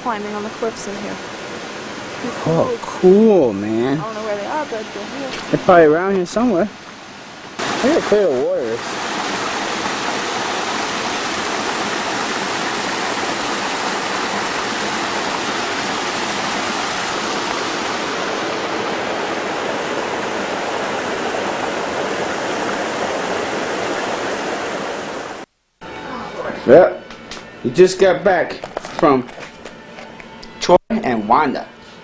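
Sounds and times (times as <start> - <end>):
creek water rushing: 0.0 - 25.5.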